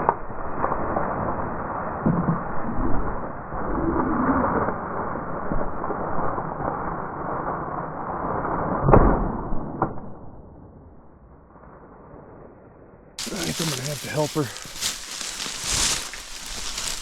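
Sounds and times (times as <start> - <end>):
rustling of dry cattails and grass: 13.2 - 17.0.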